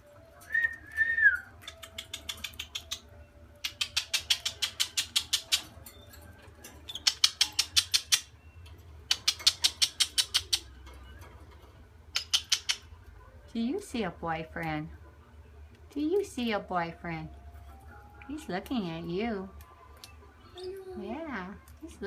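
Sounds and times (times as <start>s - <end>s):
parrot rapid chirps: 1.6s - 6.1s, 6.8s - 10.8s, 12.1s - 12.9s.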